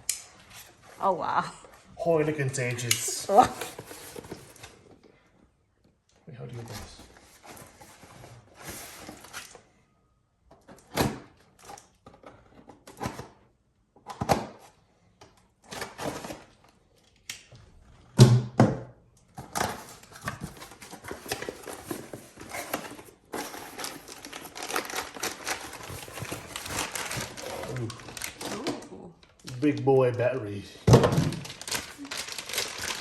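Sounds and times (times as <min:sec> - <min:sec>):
knocks and clatters of packaging: 0:10.5 - 0:13.4, 0:14.0 - 0:14.8, 0:15.6 - 0:16.6, 0:18.2 - 0:28.8, 0:30.8 - 0:33.0.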